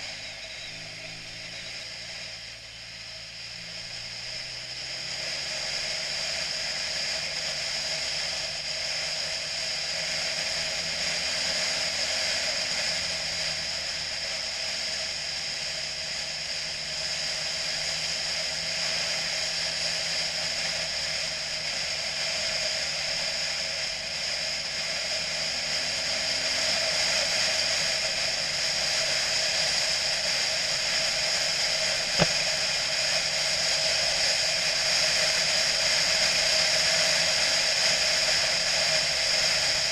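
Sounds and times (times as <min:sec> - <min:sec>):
motorcycle engine: 0:00.0 - 0:39.9
wind and road noise: 0:00.0 - 0:39.9
sharp click: 0:32.2 - 0:32.4.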